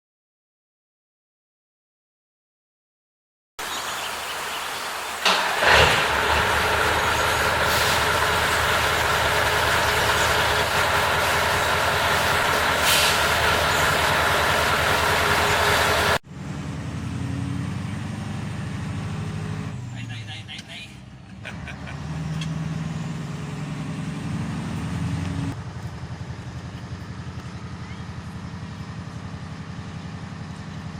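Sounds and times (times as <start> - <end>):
diesel truck engine running: 3.6 - 30.9
short air hisses: 7.6 - 8.2, 12.7 - 13.5.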